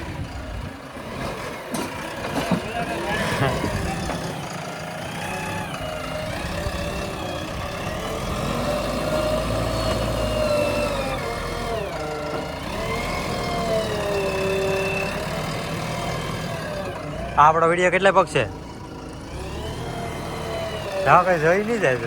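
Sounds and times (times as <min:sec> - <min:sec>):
diesel engine under load: 0:00.0 - 0:22.0.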